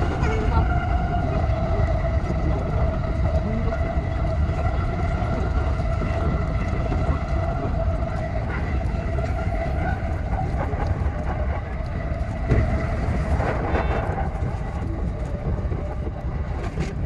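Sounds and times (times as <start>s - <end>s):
electric train whine: 0.0s - 17.0s
wheels rumbling on rail: 0.0s - 17.0s.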